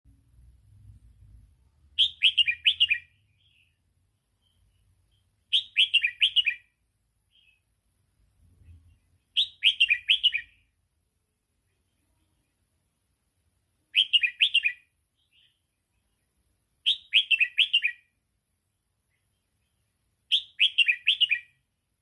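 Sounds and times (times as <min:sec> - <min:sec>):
bird singing whistled notes: 0:02.0 - 0:03.8, 0:04.4 - 0:07.6, 0:09.3 - 0:10.8, 0:13.9 - 0:15.7, 0:16.8 - 0:18.2, 0:20.3 - 0:21.6.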